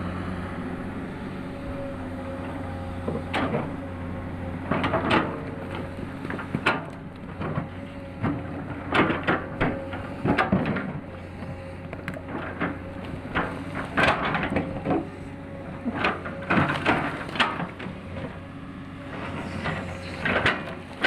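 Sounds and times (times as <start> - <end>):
excavator engine hum: 0.0 - 21.0
clanks and scrapes of bucket: 4.7 - 18.4, 19.1 - 21.0.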